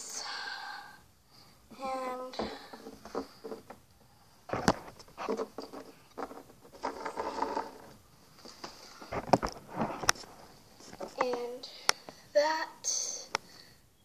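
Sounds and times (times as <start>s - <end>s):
rustling and tapping of craft pieces: 2.4s - 3.9s, 4.5s - 12.2s.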